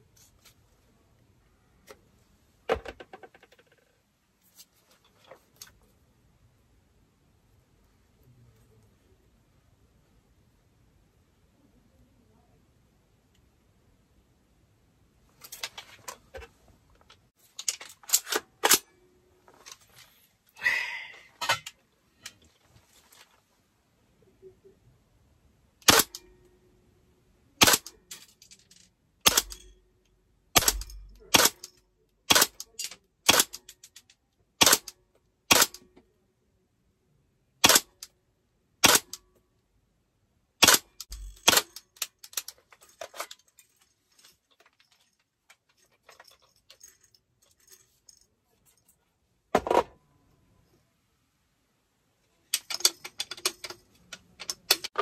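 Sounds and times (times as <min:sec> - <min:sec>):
airsoft rifle shots: 0:25.8 - 0:26.2, 0:27.6 - 0:27.9, 0:29.2 - 0:29.6, 0:30.6 - 0:31.6, 0:32.3 - 0:32.6, 0:34.6 - 0:34.9, 0:35.5 - 0:35.8, 0:37.6 - 0:37.9, 0:38.8 - 0:39.1, 0:40.6 - 0:41.8.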